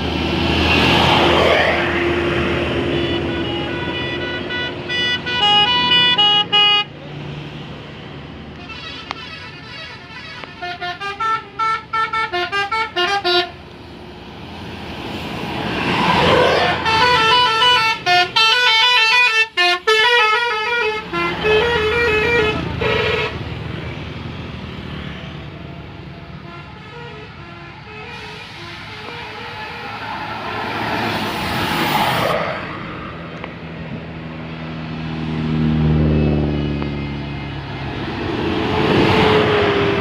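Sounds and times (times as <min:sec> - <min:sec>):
bus passing: 0:00.0 - 0:40.0
musical bus horns: 0:00.6 - 0:07.0, 0:08.4 - 0:13.8, 0:16.2 - 0:23.8, 0:25.6 - 0:31.3.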